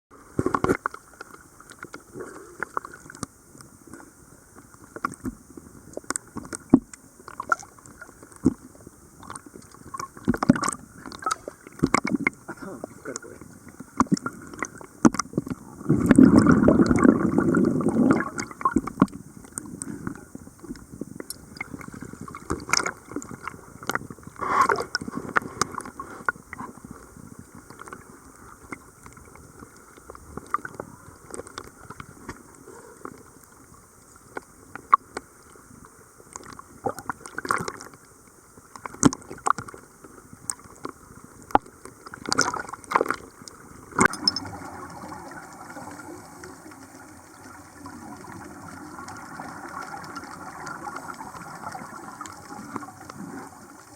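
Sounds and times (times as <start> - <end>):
water gurgling and bubbling: 5.0 - 33.0, 36.3 - 37.8, 40.3 - 53.9.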